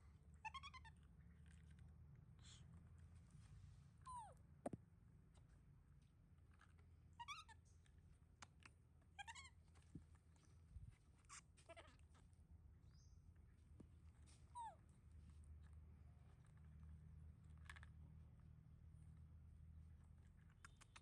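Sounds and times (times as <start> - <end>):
baby monkey squeaking: 0.4 - 1.0, 7.2 - 7.7, 9.2 - 9.6.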